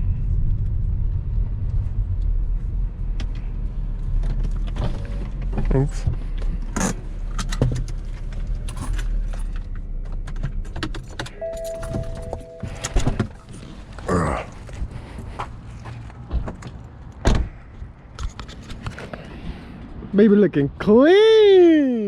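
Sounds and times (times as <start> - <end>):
keys jangling: 10.9 - 13.5
clicks: 11.3 - 13.5
short tone: 11.3 - 13.6.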